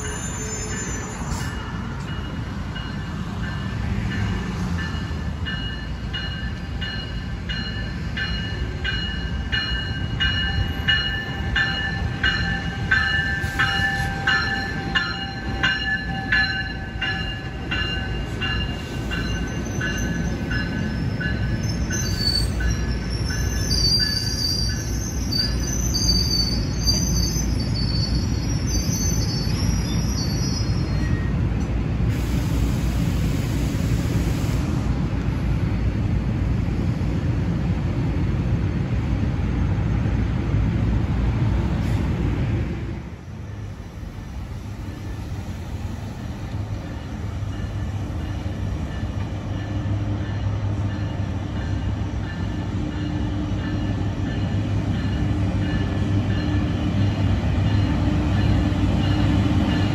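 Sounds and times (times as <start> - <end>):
high-pitched wheel squeals: 0.0 - 1.6, 19.3 - 31.3
train rumbling on rails: 0.0 - 59.9.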